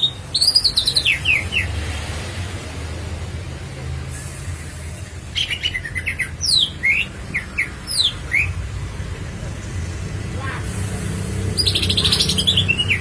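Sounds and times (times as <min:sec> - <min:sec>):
bird chirping and whistling: 0:00.0 - 0:01.8, 0:05.4 - 0:08.6, 0:11.5 - 0:13.0.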